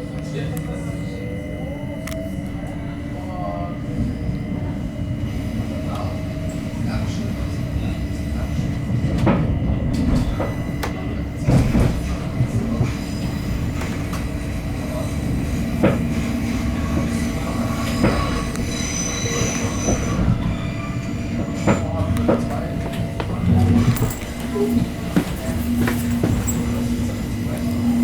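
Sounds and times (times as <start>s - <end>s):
electric train rumbling: 0.0s - 28.0s
high wheel squeal: 16.2s - 28.0s.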